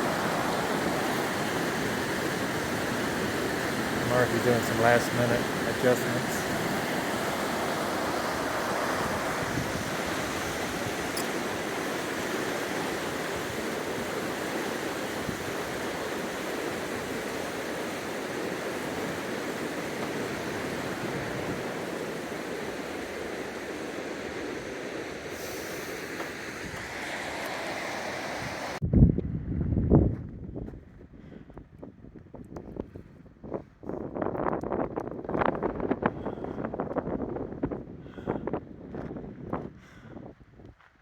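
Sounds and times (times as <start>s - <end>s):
wind buffeting microphone: 0.0s - 24.6s, 28.2s - 40.9s
fast-flowing river rushing: 0.0s - 28.8s.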